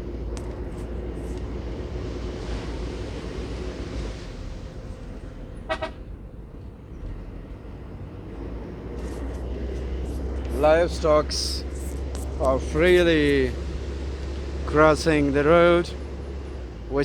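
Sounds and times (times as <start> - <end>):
car engine and road rumble: 0.0 - 17.0
car horn toot: 5.6 - 6.1.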